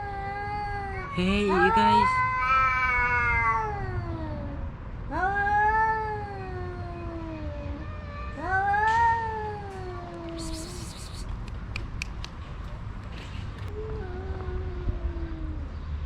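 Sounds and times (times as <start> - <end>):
cats yowling: 0.0 - 11.3.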